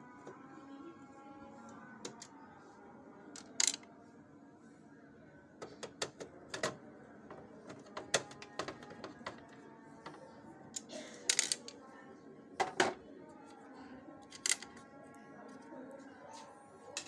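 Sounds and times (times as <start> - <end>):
plastic parts and tools clicking: 3.4 - 3.8, 5.6 - 9.5, 10.8 - 11.8, 14.3 - 14.8.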